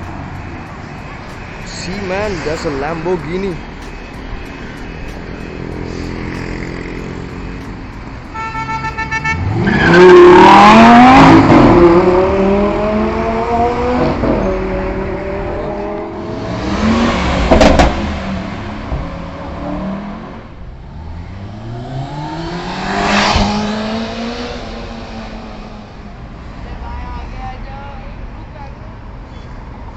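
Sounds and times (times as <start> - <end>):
car engine revving: 9.3 - 26.1.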